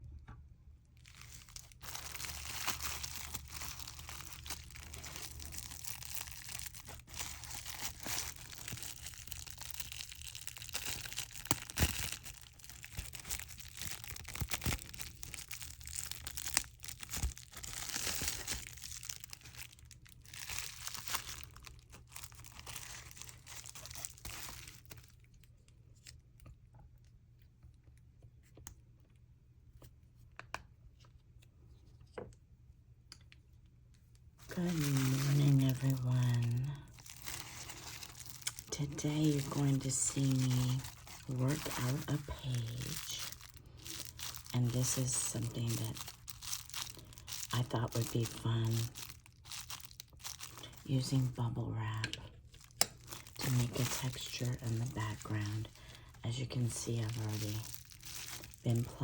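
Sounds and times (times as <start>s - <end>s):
craft materials crinkling: 1.0s - 25.2s, 34.4s - 59.0s.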